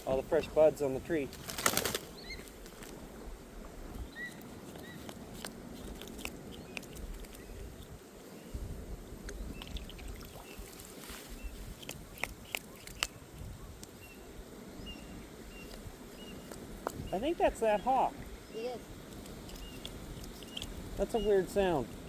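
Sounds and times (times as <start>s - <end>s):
faint bird chirps: 2.1s - 2.5s, 3.9s - 5.1s, 12.4s - 21.8s
light clicks and drips: 9.2s - 10.9s, 19.0s - 22.0s.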